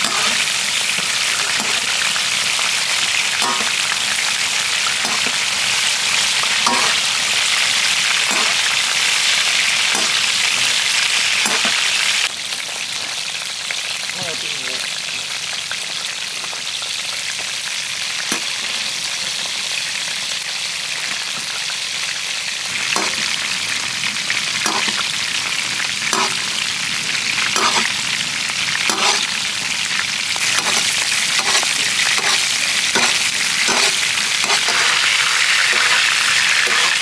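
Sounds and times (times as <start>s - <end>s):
lobsters sizzling in a wok: 0.0s - 37.0s.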